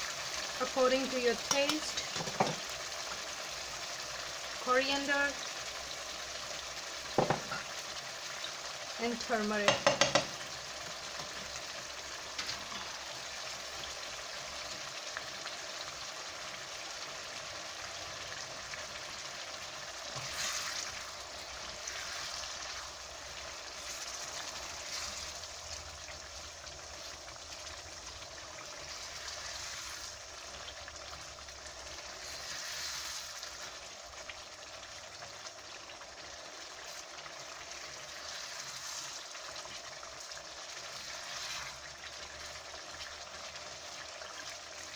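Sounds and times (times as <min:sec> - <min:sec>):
sauce sizzling and bubbling: 0:00.0 - 0:44.9
spatula stirring sauce: 0:19.7 - 0:25.6, 0:32.0 - 0:33.8, 0:36.8 - 0:44.8.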